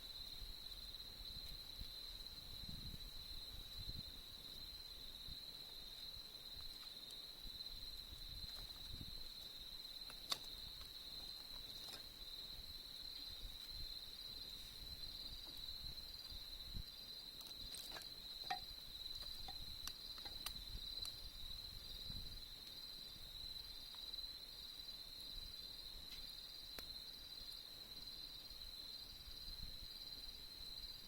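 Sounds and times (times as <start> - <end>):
crickets trilling: 0.0 - 31.0
campfire crackling pops: 5.6 - 12.2, 17.3 - 21.3, 26.0 - 27.0.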